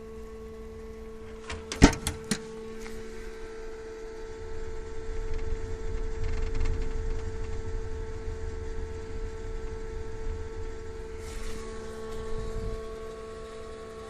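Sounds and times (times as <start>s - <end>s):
mechanical hum: 0.0s - 14.0s
low rumble: 4.4s - 13.4s.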